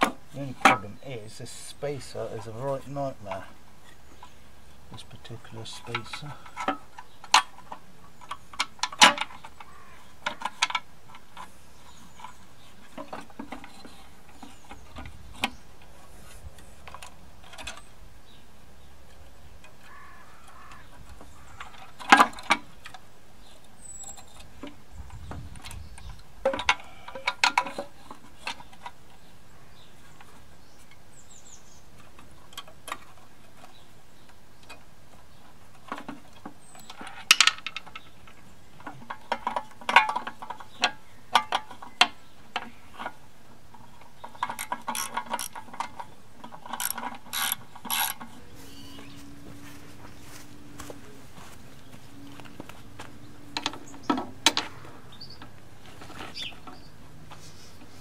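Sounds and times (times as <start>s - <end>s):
metal parts and tools clinking: 42.9s - 49.2s.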